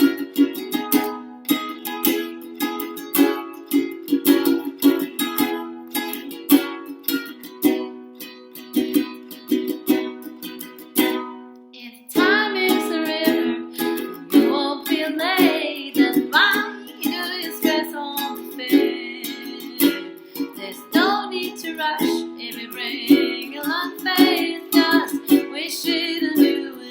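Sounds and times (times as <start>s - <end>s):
strummed string instrument: 0.0s - 26.9s
woman singing: 11.8s - 26.9s.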